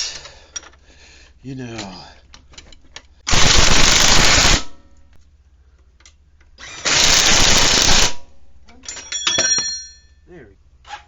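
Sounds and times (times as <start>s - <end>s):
metallic clinks: 8.8s - 10.2s.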